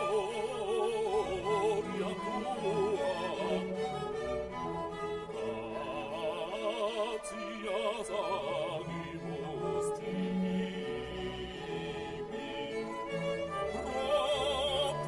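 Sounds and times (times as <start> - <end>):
operatic voice singing with vibrato: 0.0 - 4.3, 5.2 - 15.0
classical music: 0.0 - 15.0.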